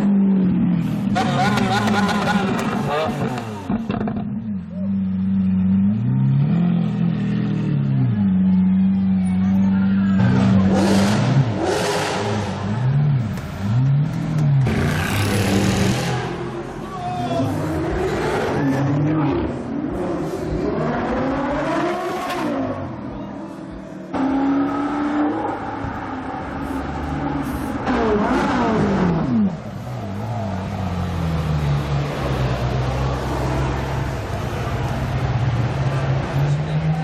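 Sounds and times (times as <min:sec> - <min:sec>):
car engines revving: 0:00.0 - 0:37.0.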